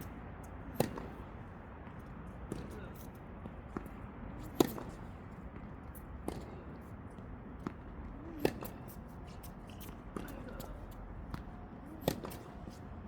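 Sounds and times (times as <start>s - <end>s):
tennis ball bouncing: 0.7s - 1.2s
tennis balls struck by rackets: 0.7s - 1.3s, 3.5s - 5.0s.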